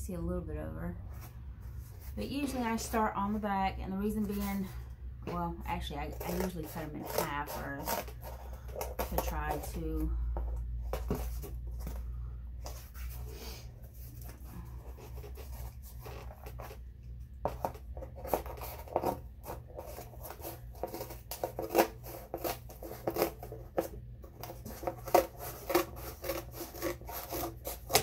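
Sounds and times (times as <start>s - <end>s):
scissors cutting cardboard: 5.3s - 12.0s, 17.4s - 28.0s.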